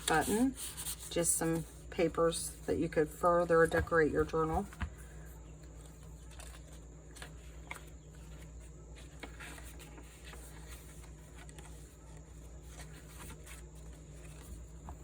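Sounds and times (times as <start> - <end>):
paper pages rustling: 5.7 - 15.0.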